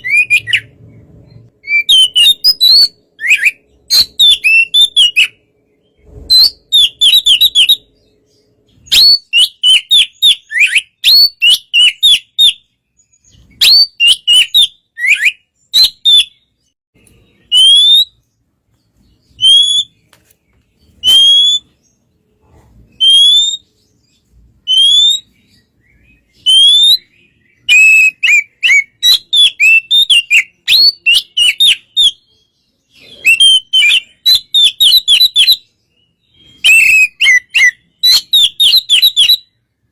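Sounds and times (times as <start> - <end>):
bird singing whistled notes: 0.0 - 20.1, 20.8 - 22.2, 22.9 - 39.8
single rising bird whistles: 21.0 - 21.7, 36.4 - 39.5.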